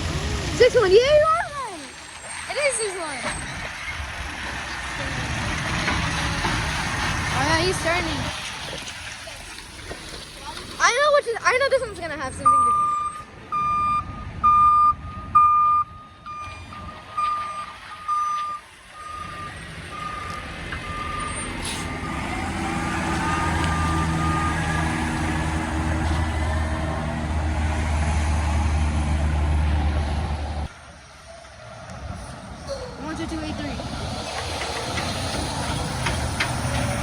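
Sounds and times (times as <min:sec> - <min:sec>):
diesel truck engine: 0:00.0 - 0:37.0
truck reversing beeper: 0:12.0 - 0:30.7
brief air hiss: 0:21.6 - 0:22.0.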